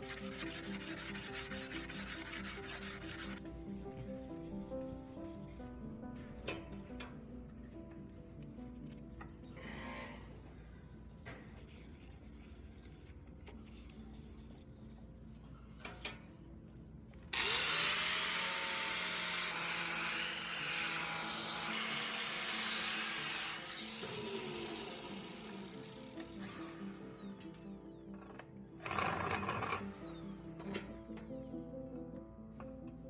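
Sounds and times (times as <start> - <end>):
power tool grinding: 17.4 - 27.7, 28.8 - 30.6.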